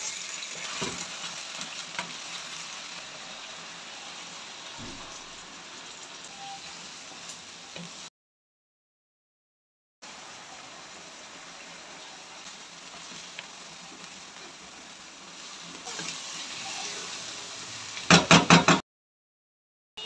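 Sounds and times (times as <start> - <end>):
meat sizzling in hot oil: 0.0 - 8.1, 10.0 - 18.7
wooden spatula knocking on pan: 18.1 - 18.8.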